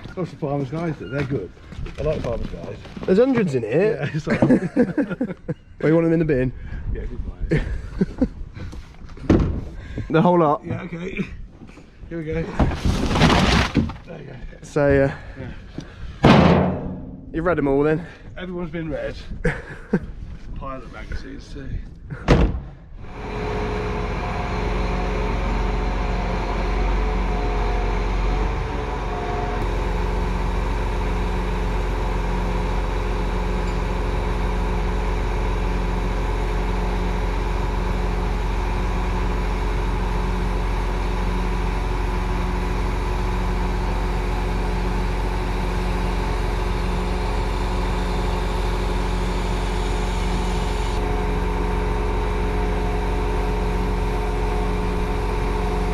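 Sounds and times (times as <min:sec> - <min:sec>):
engine idling: 0:23.0 - 0:55.9.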